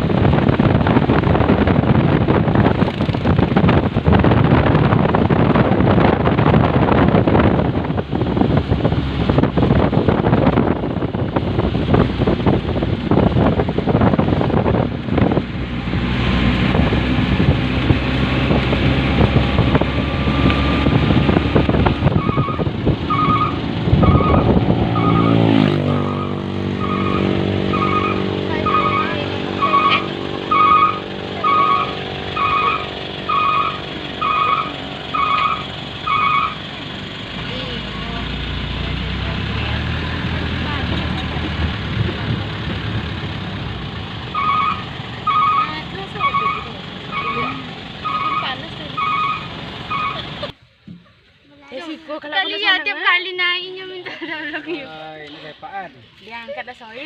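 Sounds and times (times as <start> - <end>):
vehicle engine running: 0.0 - 50.6
rough road and wind noise: 0.0 - 57.0
short electronic beep: 22.2 - 25.4.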